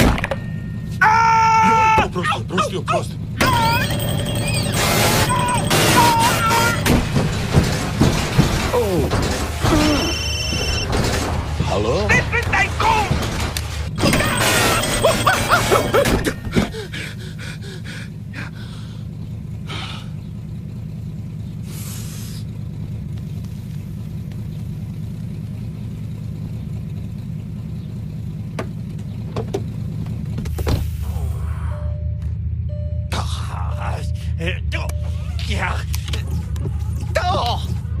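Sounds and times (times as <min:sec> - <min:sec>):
low engine hum: 0:00.0 - 0:38.0
cartoon warbling clattering effects: 0:03.4 - 0:07.0, 0:14.0 - 0:16.4.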